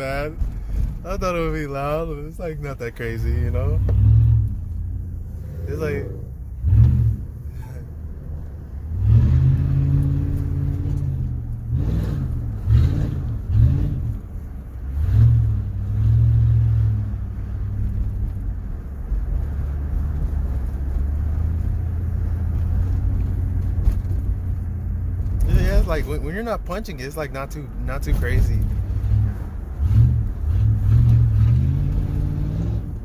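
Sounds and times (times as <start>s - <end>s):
loud car exhaust revving: 3.5s - 17.7s, 28.4s - 33.0s.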